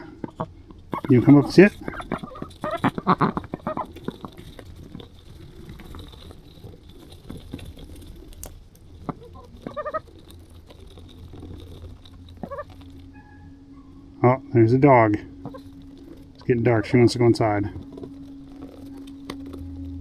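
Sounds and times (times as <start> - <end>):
ducks quacking: 0.0 - 4.7, 9.0 - 10.5, 11.2 - 20.0.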